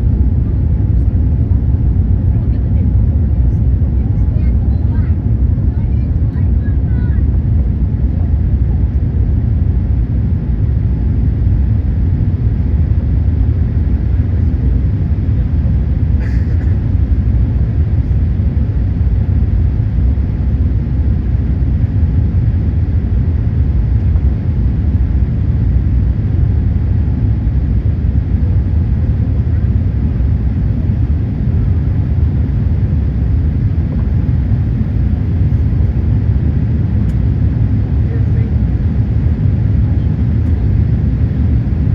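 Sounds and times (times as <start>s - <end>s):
jet engines rumbling: 0.0s - 41.9s.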